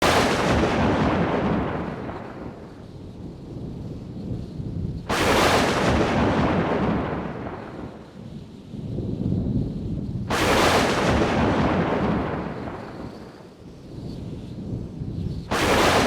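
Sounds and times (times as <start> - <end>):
sharp thunderclap: 0.0 - 2.9, 4.8 - 8.4, 9.0 - 13.4, 15.4 - 16.0
thunder rumble: 0.0 - 13.5, 14.5 - 16.0.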